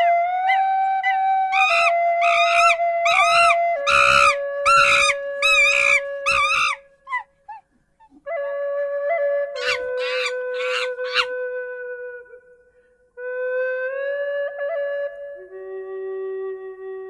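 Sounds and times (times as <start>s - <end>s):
flute music: 0.0s - 7.5s, 8.1s - 17.0s
animal short high calls: 1.6s - 7.2s, 9.6s - 11.3s.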